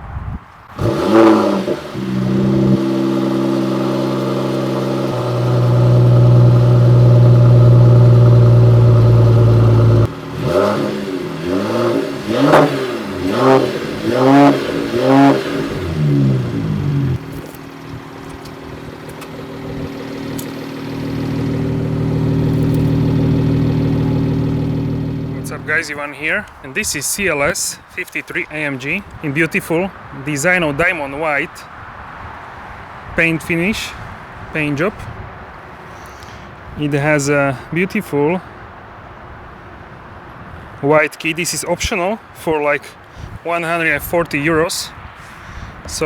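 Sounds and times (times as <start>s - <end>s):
car engine starting and idling: 0.7s - 26.6s
car engine throttle blips: 0.7s - 26.6s.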